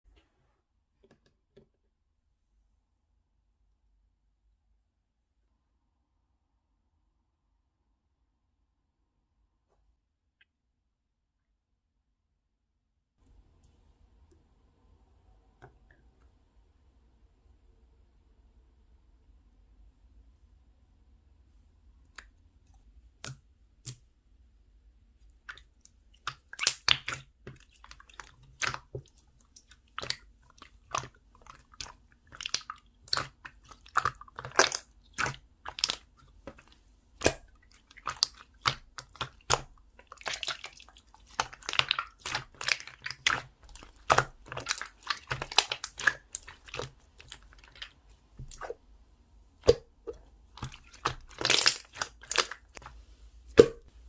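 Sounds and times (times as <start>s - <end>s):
slime squeezed by hand: 50.6s - 52.9s.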